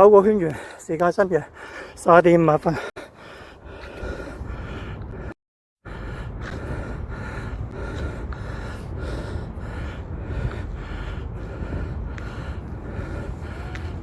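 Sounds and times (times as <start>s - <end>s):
person panting: 0.2s - 2.0s, 2.7s - 14.0s
wind rumble on microphone: 5.9s - 14.0s.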